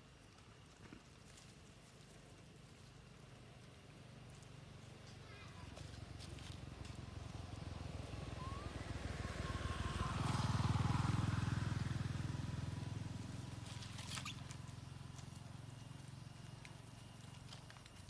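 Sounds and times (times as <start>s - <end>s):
motor vehicle passing by: 5.1s - 17.5s.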